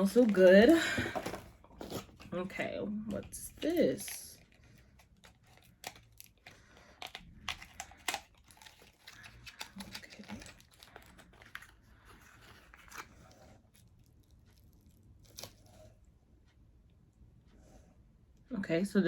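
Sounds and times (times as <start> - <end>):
packaging crinkling: 0.0 - 2.3, 3.2 - 15.8.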